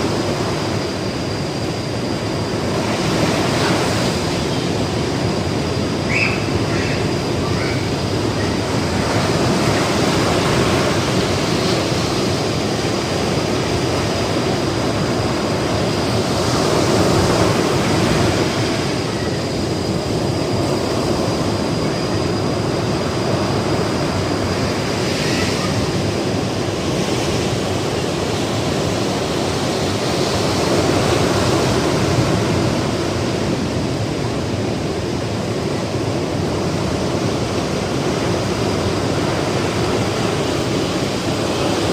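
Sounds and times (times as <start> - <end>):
ocean surf breaking: 0.0 - 41.9.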